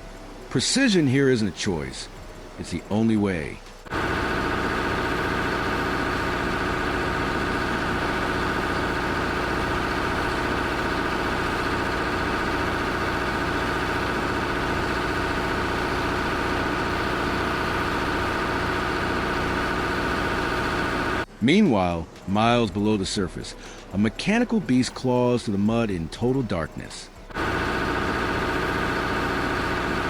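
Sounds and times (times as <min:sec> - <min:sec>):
heavy equipment engine running: 0:03.6 - 0:21.3, 0:27.2 - 0:30.0.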